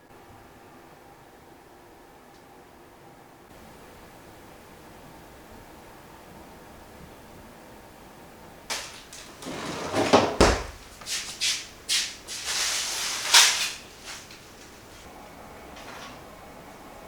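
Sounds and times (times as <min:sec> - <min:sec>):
kitchen knocks and clatters: 0:08.7 - 0:12.4.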